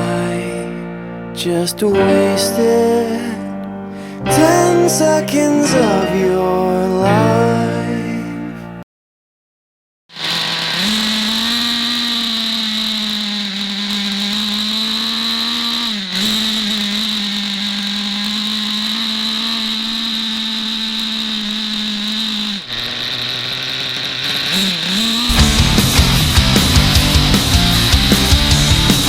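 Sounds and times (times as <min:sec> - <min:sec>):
rc nitro engine high buzz: 0:10.1 - 0:29.0.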